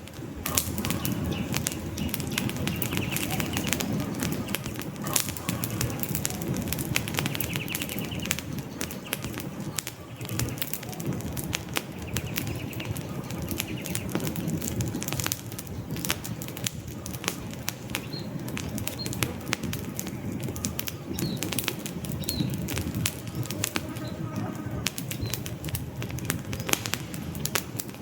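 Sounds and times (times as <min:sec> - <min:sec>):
campfire crackling and popping: 0:00.0 - 0:28.0
high bird chirps: 0:00.8 - 0:11.2, 0:11.8 - 0:14.4.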